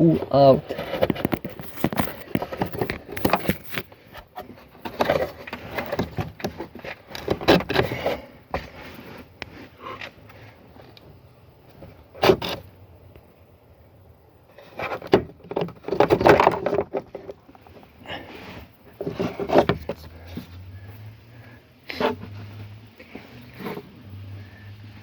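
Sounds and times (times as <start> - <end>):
clattering of car parts: 0.0 - 9.0, 14.5 - 21.0
clicks and knocks of car parts: 0.7 - 8.7, 14.6 - 17.7, 18.9 - 20.4.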